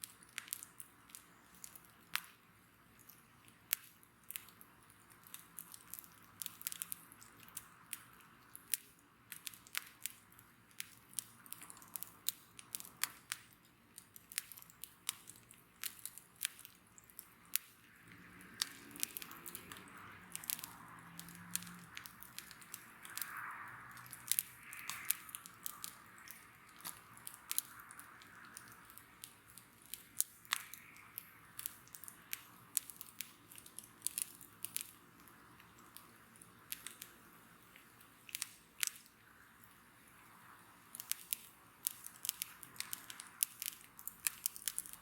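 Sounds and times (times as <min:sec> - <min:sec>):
bonfire crackling and popping: 0:00.0 - 0:45.0.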